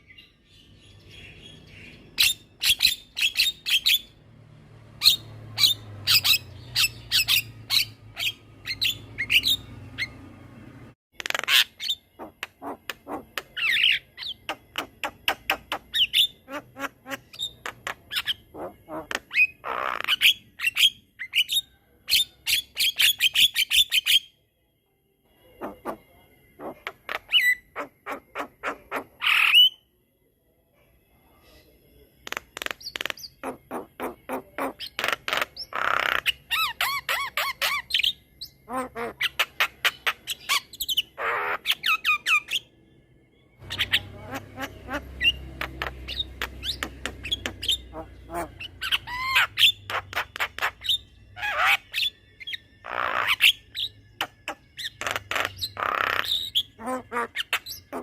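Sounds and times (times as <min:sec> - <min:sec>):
bird harsh squawks: 0:11.2 - 0:21.5, 0:25.6 - 0:29.8, 0:32.3 - 0:42.6, 0:43.6 - 0:58.0.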